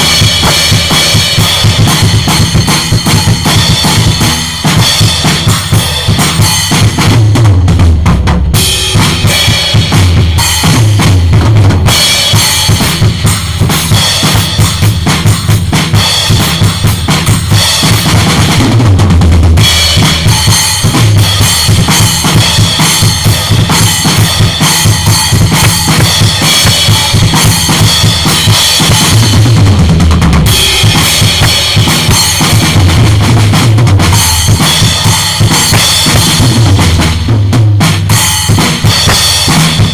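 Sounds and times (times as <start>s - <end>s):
snare and rim hits: 0.0s - 4.2s, 23.8s - 29.3s, 30.6s - 33.0s
cymbals washing: 0.0s - 6.8s, 19.7s - 29.8s, 30.4s - 37.1s
bass drum: 0.0s - 39.9s.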